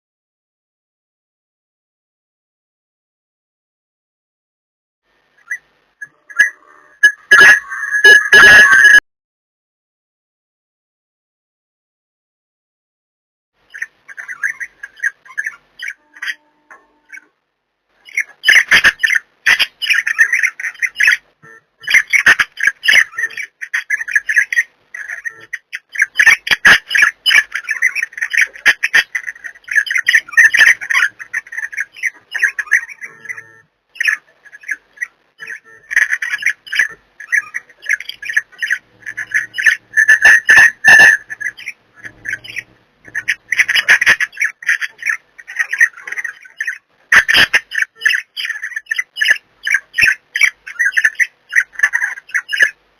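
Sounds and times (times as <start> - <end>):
budgerigars chattering and warbling: 13.7 - 16.4, 18.0 - 52.8.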